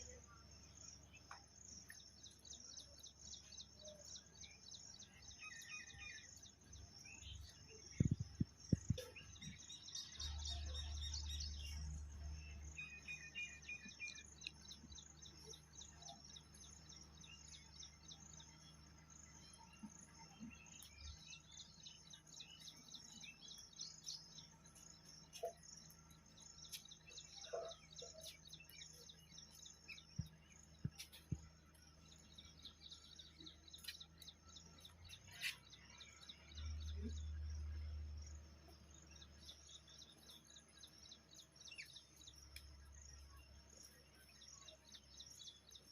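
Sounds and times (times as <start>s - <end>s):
small birds chirping: 0.0s - 45.9s
dull low thumps: 7.9s - 9.6s.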